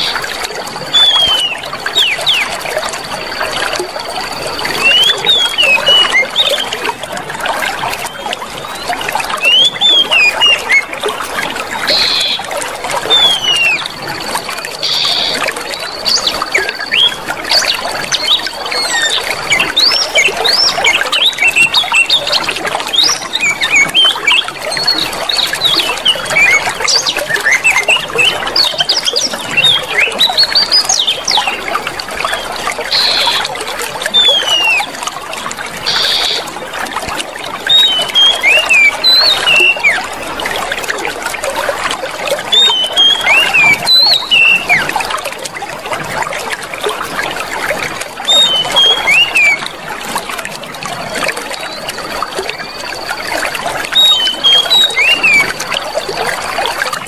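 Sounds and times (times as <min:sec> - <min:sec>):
small birds whistling: 0:00.0 - 0:02.6, 0:04.6 - 0:06.8, 0:07.9 - 0:10.9, 0:11.8 - 0:12.5, 0:13.1 - 0:33.5, 0:34.1 - 0:34.9, 0:35.9 - 0:36.5, 0:37.7 - 0:40.1, 0:42.5 - 0:44.8, 0:48.3 - 0:49.7, 0:51.6 - 0:56.0
running water trickling: 0:00.0 - 0:57.0.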